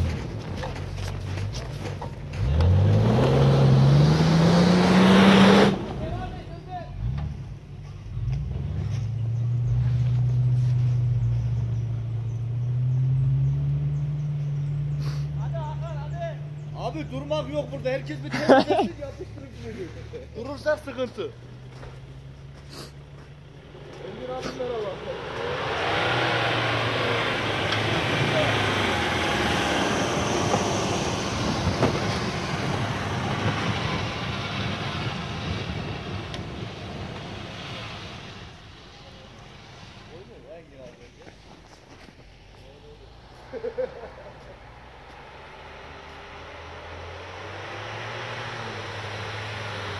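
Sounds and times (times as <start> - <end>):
off-road vehicle engine idling: 5.9 - 49.9.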